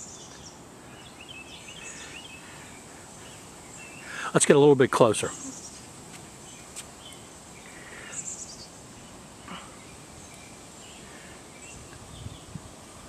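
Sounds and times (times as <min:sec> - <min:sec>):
background hiss: 0:00.0 - 0:13.0
faint bird chirps: 0:05.2 - 0:12.6.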